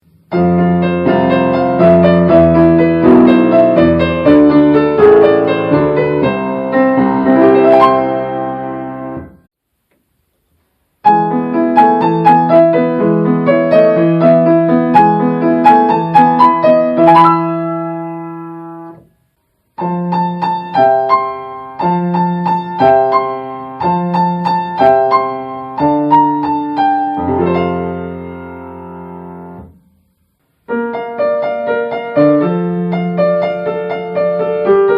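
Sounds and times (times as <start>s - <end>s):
solo piano melodies: 0.0s - 9.5s, 11.0s - 34.9s.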